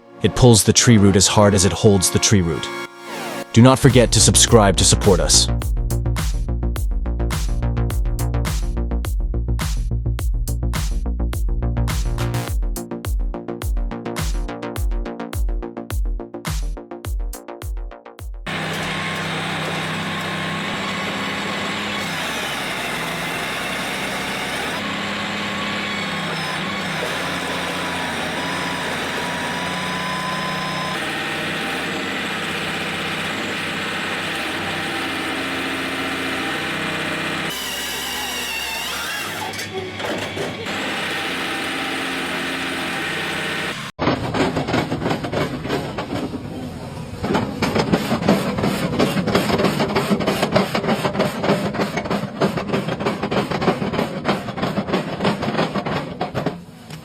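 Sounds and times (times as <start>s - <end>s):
heavy machinery running: 0.0s - 5.5s, 18.5s - 56.8s
rapid rattling and knocking: 47.2s - 56.7s.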